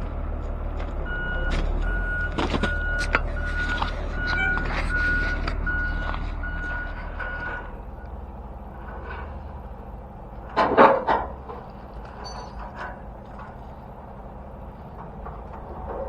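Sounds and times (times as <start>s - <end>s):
diesel engine running: 0.0s - 16.0s
truck reversing alarm beeping: 0.1s - 9.6s, 12.0s - 12.8s.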